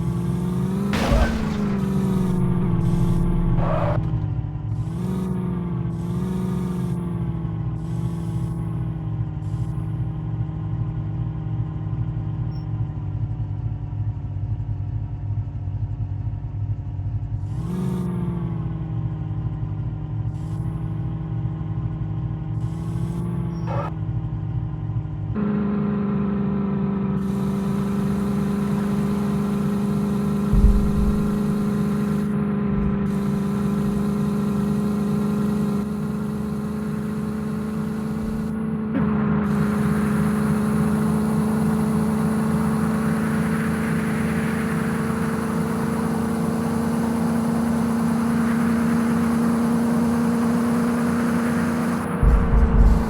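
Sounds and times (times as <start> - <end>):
heavy diesel engine running hard: 0.0 - 10.4, 24.8 - 53.0
low thump: 1.0 - 4.3, 30.4 - 34.5, 38.3 - 38.8, 52.2 - 53.0.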